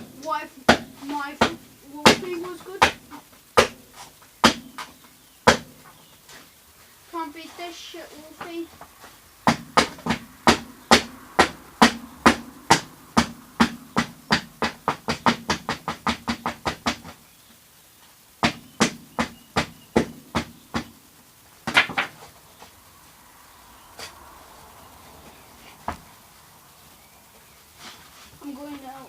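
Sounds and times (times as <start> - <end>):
sharp strikes on hollow plastic: 0.7 - 5.8, 9.4 - 17.2, 18.4 - 21.0.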